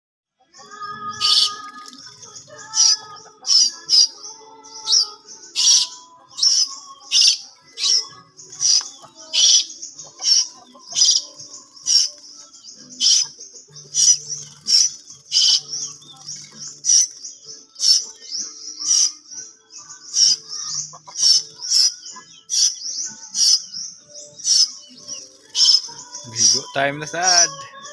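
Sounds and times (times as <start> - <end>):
starling shrill call notes: 0.6 - 1.8
bird chattering: 0.8 - 27.9.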